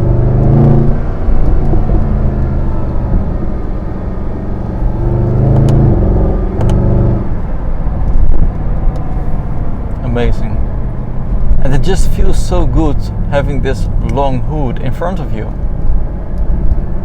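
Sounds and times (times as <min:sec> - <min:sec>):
sharp exhaust pops: 0:00.0 - 0:10.2
car engine revving: 0:00.0 - 0:17.0.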